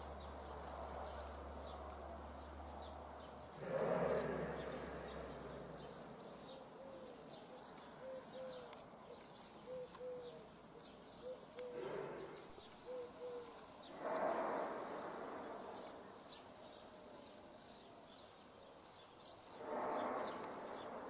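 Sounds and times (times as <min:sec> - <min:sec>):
faint bird chirps: 0:02.8 - 0:21.0
bird hooting low notes: 0:03.5 - 0:17.8, 0:19.5 - 0:21.0.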